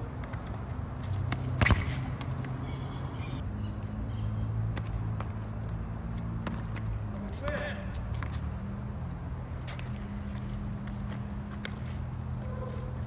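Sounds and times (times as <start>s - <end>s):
football kicked with thud: 1.3s - 2.2s
high-pitched bird calls: 2.6s - 4.5s.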